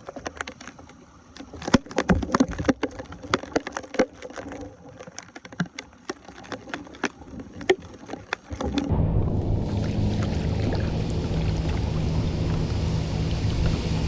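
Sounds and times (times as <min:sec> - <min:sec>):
water splashing: 0:05.9 - 0:14.0.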